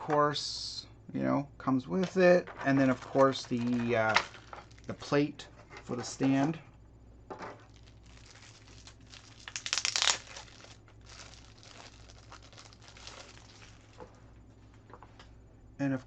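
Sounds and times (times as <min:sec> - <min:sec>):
plastic packaging crinkling: 0:02.8 - 0:05.1, 0:07.6 - 0:14.2.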